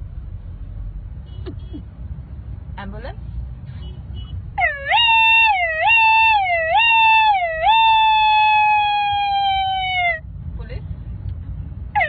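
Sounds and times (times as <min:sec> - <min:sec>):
person imitating a siren: 0:04.6 - 0:10.2.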